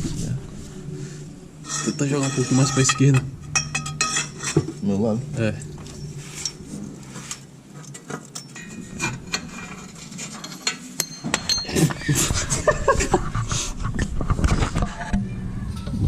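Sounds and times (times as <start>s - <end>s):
tools clinking on exhaust pipe: 1.7s - 4.8s, 7.8s - 12.1s.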